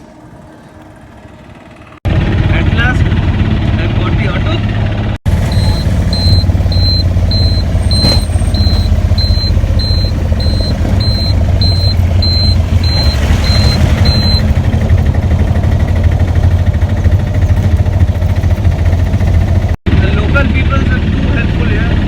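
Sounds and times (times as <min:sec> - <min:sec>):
auto-rickshaw engine droning: 0:00.0 - 0:22.0
high electronic beeps: 0:05.5 - 0:14.5.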